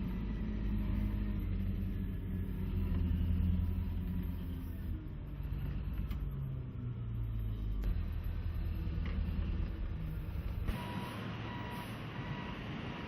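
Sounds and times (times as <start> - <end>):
diesel truck engine rumbling: 0.0 - 13.0
reversing alarm beeping: 10.7 - 13.0.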